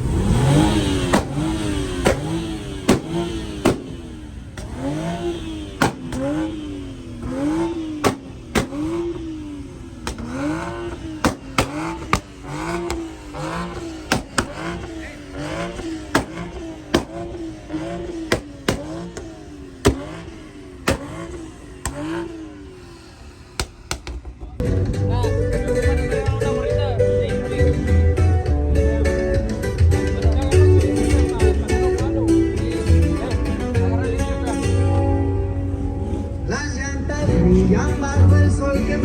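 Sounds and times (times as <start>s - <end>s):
sharp exhaust cracks: 0.0s - 24.6s
engine revving: 0.0s - 39.0s.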